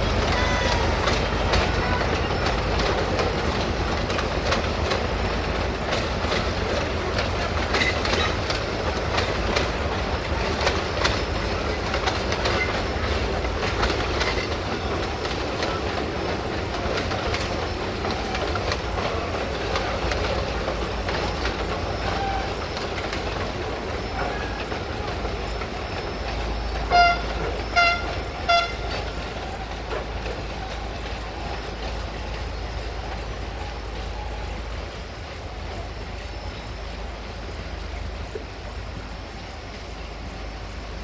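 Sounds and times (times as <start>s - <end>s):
train clattering along track: 0.0s - 41.0s
locomotive horn toots: 22.0s - 23.0s, 26.7s - 30.0s.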